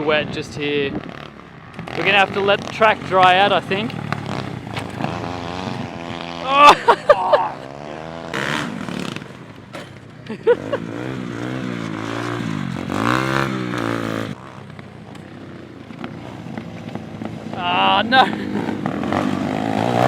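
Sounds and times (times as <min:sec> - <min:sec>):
small engine revving: 0:00.0 - 0:20.0
scraping clatter: 0:00.8 - 0:06.4.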